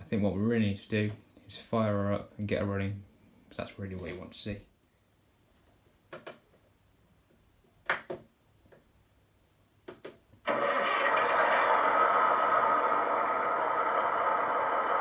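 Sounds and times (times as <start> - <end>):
diesel engine sound from small speaker: 10.5 - 15.0.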